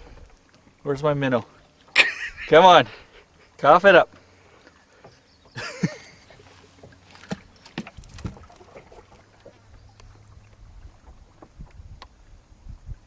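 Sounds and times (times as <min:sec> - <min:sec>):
knocks and clicks of fishing gear: 0:06.8 - 0:08.6.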